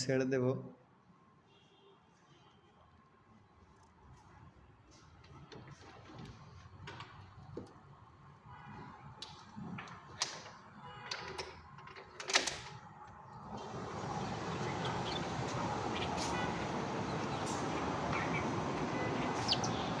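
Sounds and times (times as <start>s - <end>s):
steady outdoor hiss: 13.4s - 20.0s.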